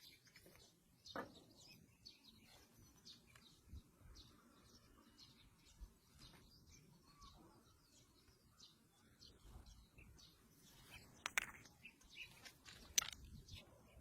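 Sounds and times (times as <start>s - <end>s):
faint bird chirps: 0.0s - 14.0s.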